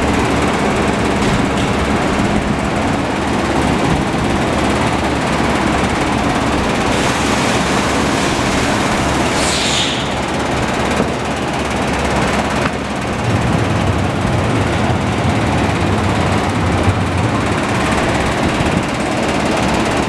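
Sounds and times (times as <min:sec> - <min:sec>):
brief hiss: 0:09.4 - 0:10.2
motorcycle engine running: 0:10.6 - 0:20.0.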